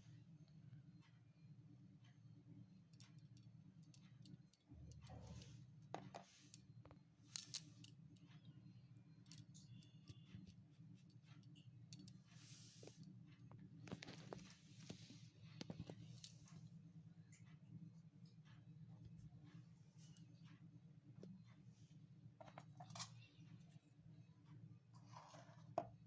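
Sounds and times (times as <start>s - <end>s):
low steady hum: 0.0s - 26.0s
small utensils clicking and scraping: 3.0s - 8.6s, 9.2s - 13.1s, 22.4s - 23.3s, 25.0s - 25.9s.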